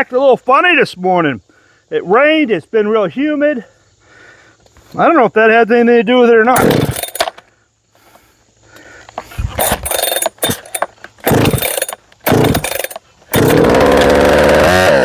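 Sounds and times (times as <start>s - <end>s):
chainsaw starting and running: 6.6s - 7.3s, 9.6s - 15.0s.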